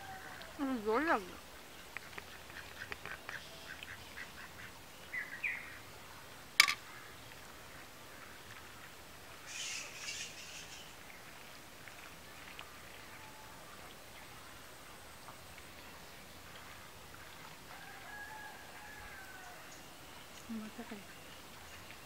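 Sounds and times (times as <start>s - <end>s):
birds calling: 0.0s - 5.8s, 9.4s - 11.2s.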